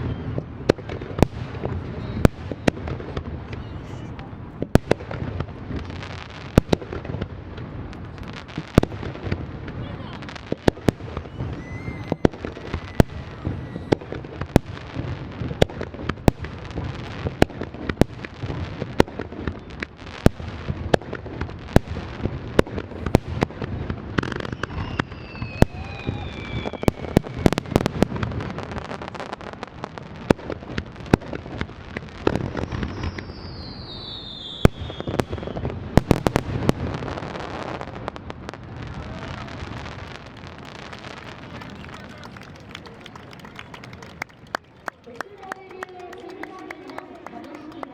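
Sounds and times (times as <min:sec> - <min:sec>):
firework crackling: 0:00.0 - 0:47.9
falling whistling tones: 0:11.2 - 0:13.8, 0:24.4 - 0:27.6.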